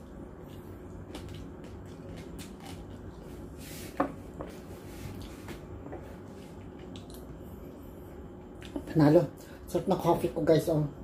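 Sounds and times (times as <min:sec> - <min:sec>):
low background hum: 0:00.0 - 0:11.0
person chewing: 0:00.3 - 0:03.5, 0:06.7 - 0:07.4.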